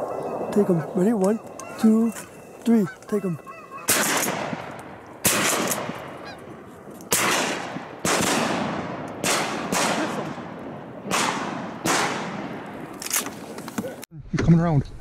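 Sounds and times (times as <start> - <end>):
shotgun blasts: 3.9 - 6.2, 7.1 - 12.8.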